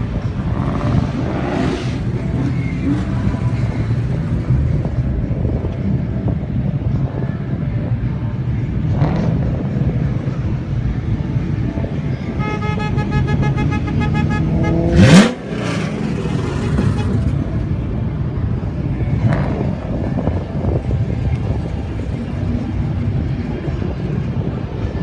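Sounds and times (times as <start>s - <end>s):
car engines rumbling: 0.0s - 25.0s
car horn: 12.2s - 17.5s
engine revving hard: 14.1s - 17.3s.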